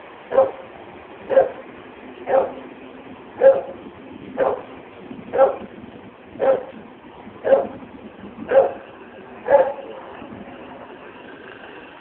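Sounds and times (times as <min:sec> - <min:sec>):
dog barking: 0:00.3 - 0:00.6, 0:01.3 - 0:01.6, 0:02.3 - 0:02.6, 0:03.4 - 0:03.8, 0:04.4 - 0:04.7, 0:05.3 - 0:05.7, 0:06.4 - 0:06.8, 0:07.4 - 0:07.8, 0:08.5 - 0:08.8, 0:09.4 - 0:10.0.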